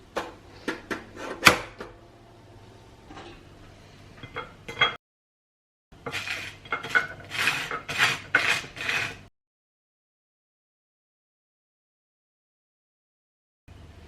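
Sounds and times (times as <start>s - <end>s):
dishes and cutlery clattering: 4.2s - 5.0s, 6.1s - 8.6s.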